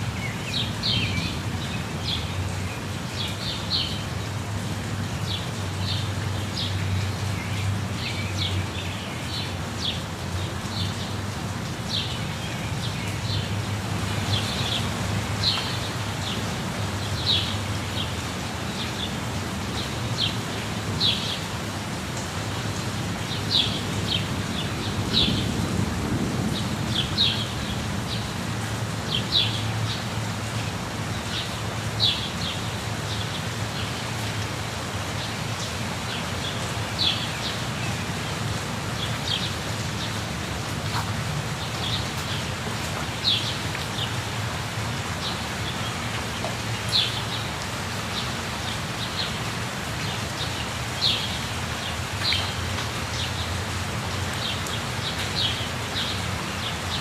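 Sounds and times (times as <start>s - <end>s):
waterfall rushing: 0.0s - 57.0s
birds chirping: 11.9s - 19.2s.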